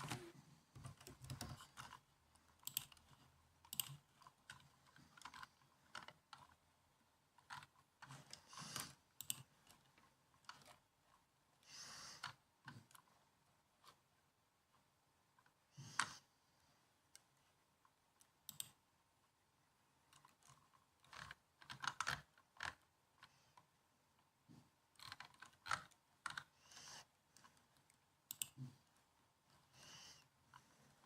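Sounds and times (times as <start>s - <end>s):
laptop keyboard typing: 0.0s - 10.9s, 11.7s - 13.1s, 18.2s - 18.8s, 20.1s - 23.6s, 24.9s - 31.0s.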